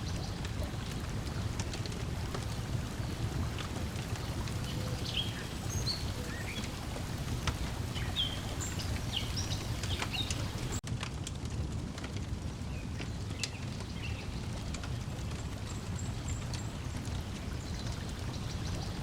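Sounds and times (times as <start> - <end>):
water lapping at shore: 0.0 - 10.8, 13.3 - 19.0
wood fire crackling: 0.0 - 19.0.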